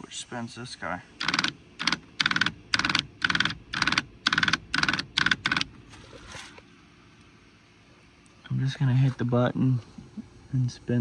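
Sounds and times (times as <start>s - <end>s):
seat motor clicking whir: 1.2s - 6.6s.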